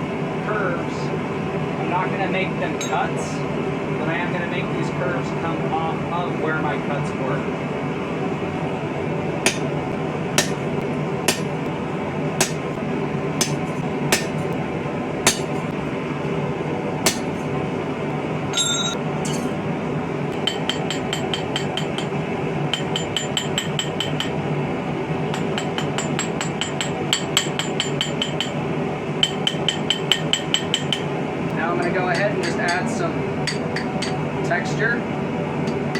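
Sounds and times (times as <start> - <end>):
hammer striking chisel on steel: 9.5 - 9.8, 10.4 - 10.7, 11.3 - 11.7, 12.4 - 12.8, 13.4 - 14.6, 15.3 - 15.7, 17.1 - 17.5, 19.2 - 19.6, 20.3 - 24.4, 25.3 - 28.6, 29.2 - 31.1, 33.5 - 34.2
light hammer blows ringing on steel: 9.5 - 9.8, 10.4 - 10.7, 11.3 - 11.6, 12.4 - 12.8, 13.4 - 14.5, 15.3 - 15.7, 17.1 - 17.5
ringing metal clink: 18.6 - 19.6.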